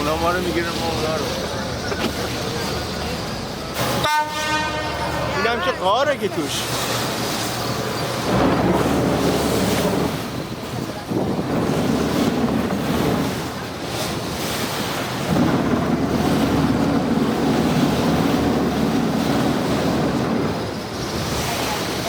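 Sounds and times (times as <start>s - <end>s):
boat engine running: 0.0s - 22.0s
water rushing past hull: 0.0s - 22.0s
wind buffeting microphone: 7.1s - 22.0s.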